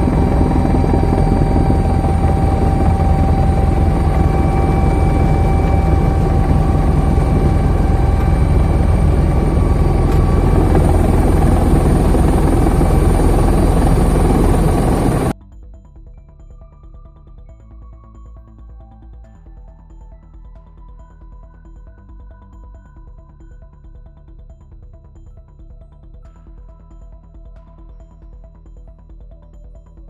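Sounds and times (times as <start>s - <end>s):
helicopter rotor: 0.0s - 15.4s
high turbine whine: 0.0s - 15.4s.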